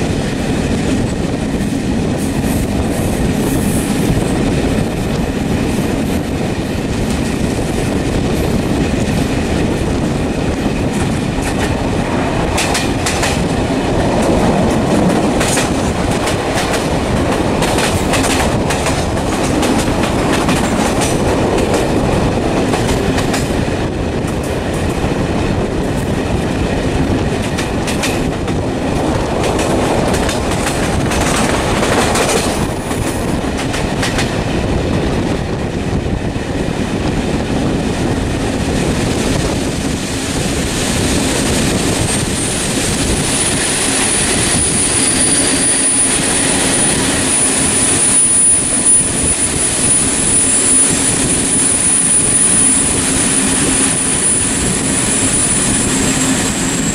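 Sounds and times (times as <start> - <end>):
loud rumbling noise: 0.0 - 56.9.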